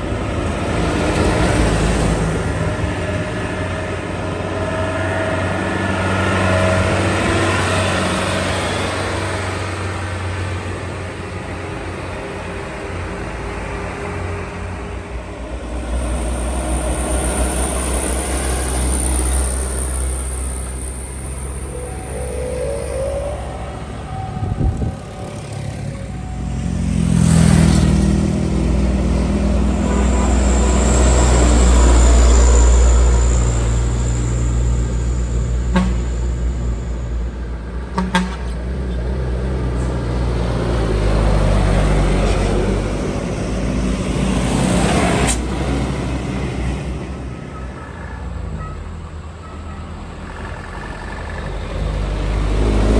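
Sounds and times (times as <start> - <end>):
diesel trucks labouring uphill: 0.0 - 52.9
high whine: 16.1 - 27.0.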